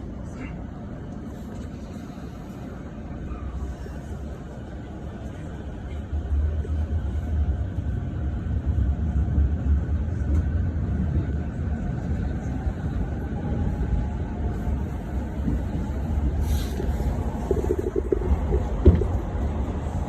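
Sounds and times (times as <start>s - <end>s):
train wheels rumbling: 6.2s - 20.0s.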